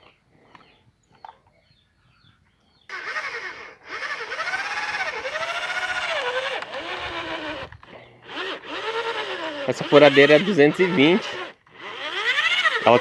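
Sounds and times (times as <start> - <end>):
electric drill whining: 2.9 - 13.0.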